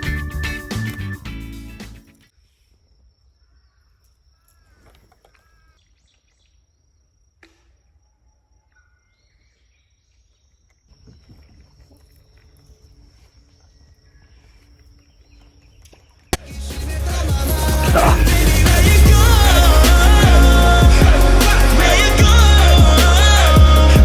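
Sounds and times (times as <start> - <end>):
low hum: 16.5 - 24.0.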